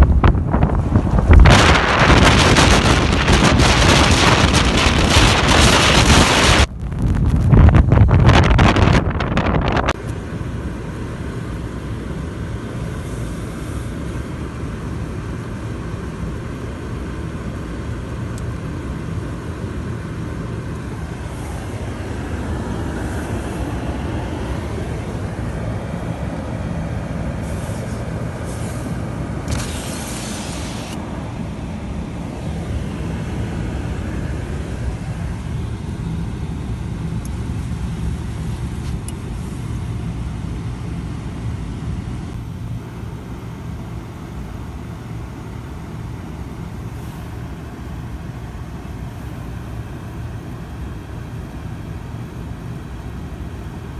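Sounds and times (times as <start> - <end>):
strong wind: 0.0 - 10.1
vehicle engine and road rumble: 0.0 - 53.9
brief rushing hiss: 27.4 - 31.0.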